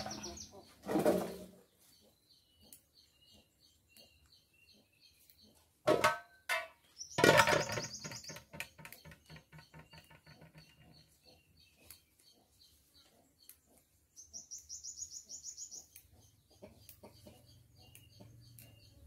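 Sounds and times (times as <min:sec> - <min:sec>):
longer bird calls: 0:00.0 - 0:05.6
birds chirping: 0:00.0 - 0:19.0.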